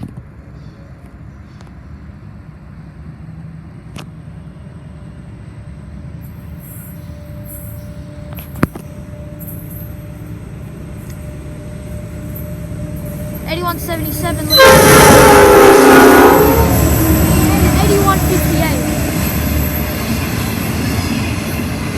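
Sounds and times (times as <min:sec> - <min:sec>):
locomotive engine rumble: 0:00.2 - 0:21.9.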